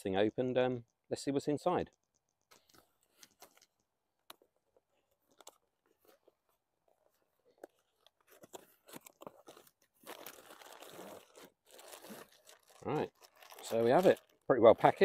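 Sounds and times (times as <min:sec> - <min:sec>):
cardboard packaging rustling: 0:04.9 - 0:15.0.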